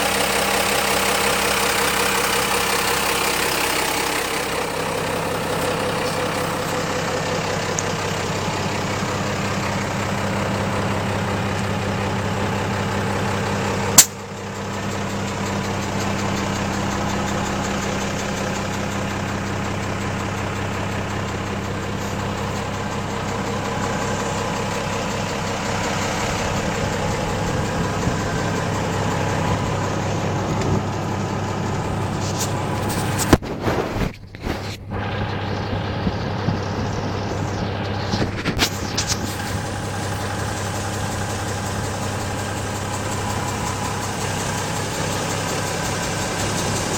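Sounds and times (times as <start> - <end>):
diesel engine idling: 0.0 - 46.9
sharp click: 14.0 - 14.2.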